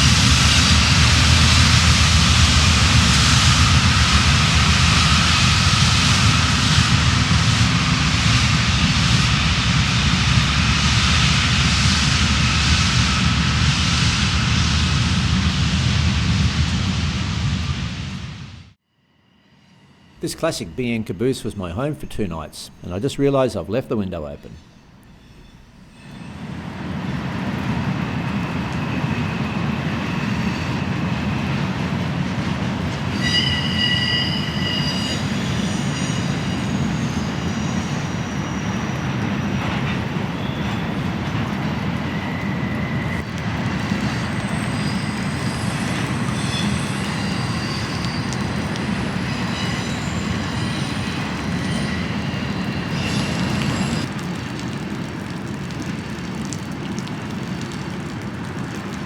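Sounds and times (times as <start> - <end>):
train rumbling past: 0.0 - 59.0
train wheels squealing: 24.4 - 27.8, 28.4 - 54.1.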